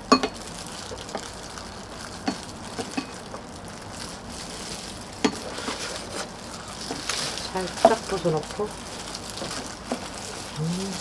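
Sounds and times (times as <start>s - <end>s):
faint outdoor background noise: 0.0s - 11.0s.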